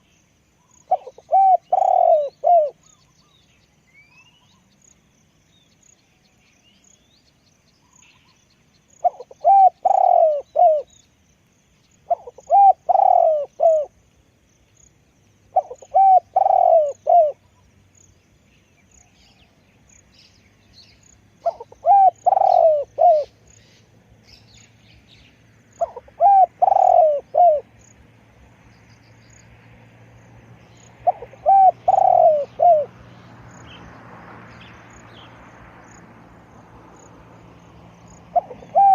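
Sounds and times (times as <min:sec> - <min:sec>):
dove cooing: 0:00.9 - 0:03.0, 0:09.0 - 0:10.9, 0:12.1 - 0:13.9, 0:15.5 - 0:17.5, 0:21.4 - 0:23.4, 0:25.8 - 0:27.8, 0:31.0 - 0:33.0, 0:38.3 - 0:38.9.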